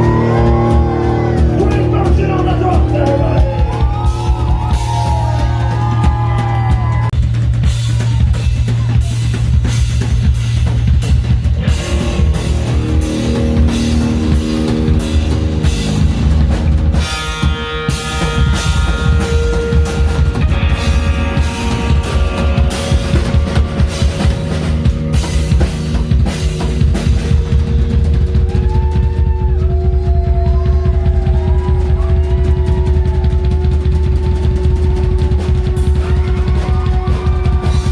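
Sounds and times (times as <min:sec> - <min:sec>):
sustained melodic lines: 0:00.0 - 0:06.2, 0:11.6 - 0:29.4
drum kit with cymbals: 0:00.0 - 0:37.9
heavy bass line: 0:00.0 - 0:37.9
rock band playing: 0:00.0 - 0:37.9.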